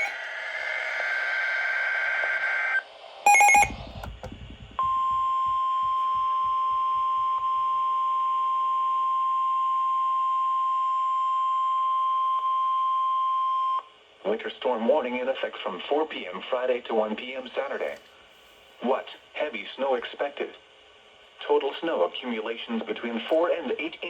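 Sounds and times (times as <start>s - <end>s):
steady high alarm tone: 0.0s - 1.5s, 3.3s - 4.1s
buzzy data tones: 0.0s - 7.4s.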